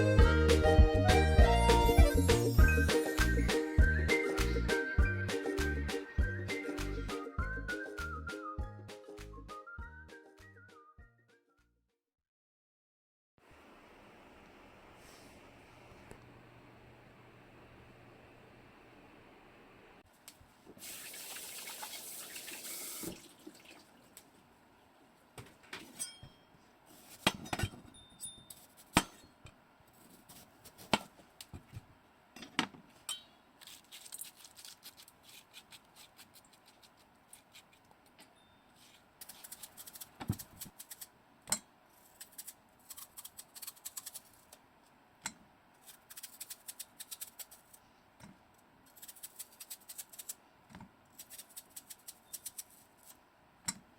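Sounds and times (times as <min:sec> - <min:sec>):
water running from a tap: 0:20.8 - 0:23.9
dishes and utensils clinking: 0:25.8 - 0:26.5.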